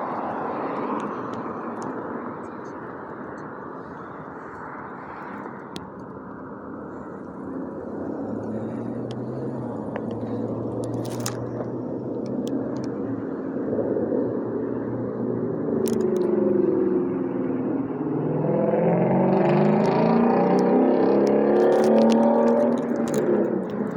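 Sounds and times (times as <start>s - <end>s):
vehicle engine running: 6.6s - 16.6s.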